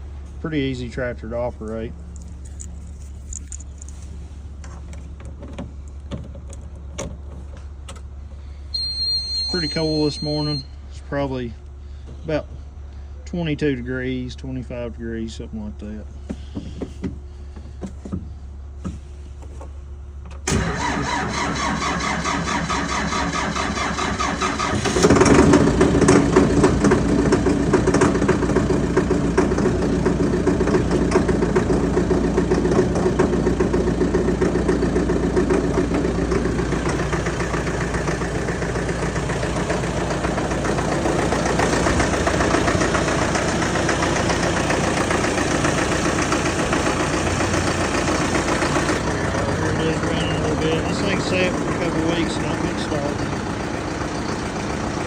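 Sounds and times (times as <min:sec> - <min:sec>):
diesel engine running: 0:00.0 - 0:55.0
starter motor cranking: 0:20.4 - 0:27.2.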